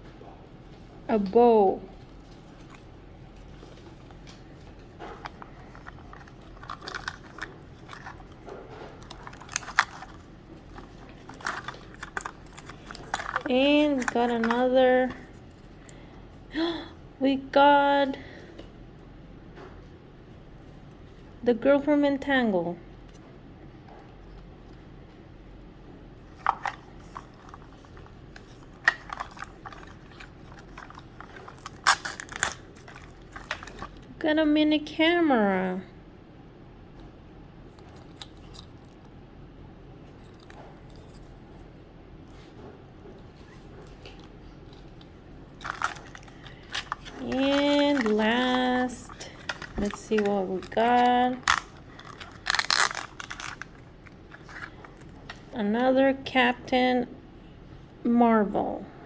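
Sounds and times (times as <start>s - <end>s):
wrappers crinkling: 1.9s - 16.8s, 26.3s - 34.1s, 43.4s - 55.6s
small plastic toys clicking: 5.2s - 8.4s, 9.0s - 15.2s, 26.4s - 34.0s, 45.6s - 55.1s.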